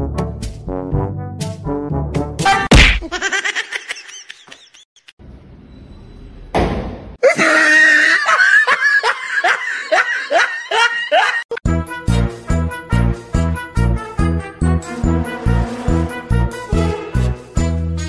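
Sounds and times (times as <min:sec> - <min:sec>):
loud laughter: 0:03.0 - 0:04.8, 0:07.2 - 0:11.6.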